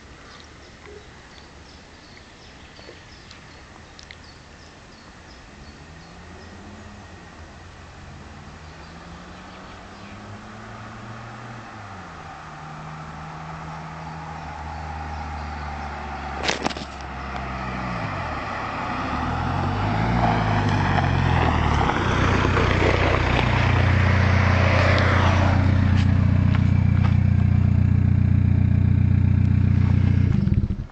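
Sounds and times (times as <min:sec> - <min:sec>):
diesel engine running: 0:19.1 - 0:30.9.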